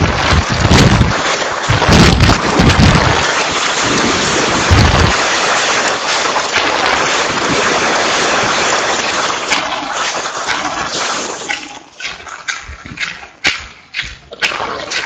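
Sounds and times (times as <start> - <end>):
wind gusting on microphone: 0.0 - 5.4
heavy rain hiss: 0.0 - 11.4.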